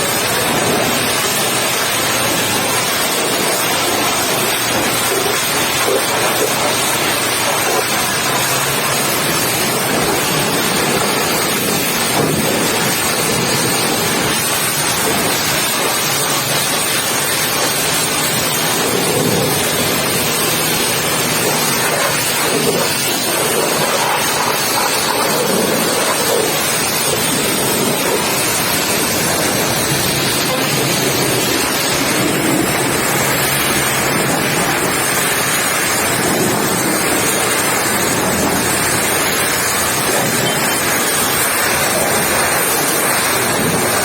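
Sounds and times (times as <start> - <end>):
pressure washer spraying water: 0.0 - 44.0.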